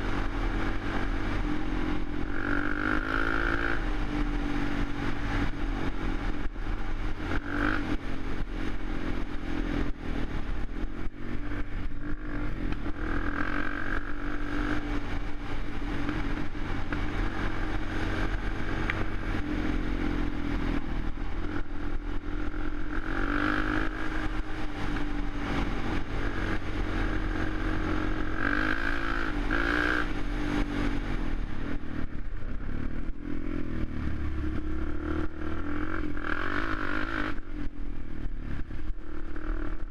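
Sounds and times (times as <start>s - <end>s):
quad engine revving: 0.0s - 4.3s, 22.5s - 30.1s.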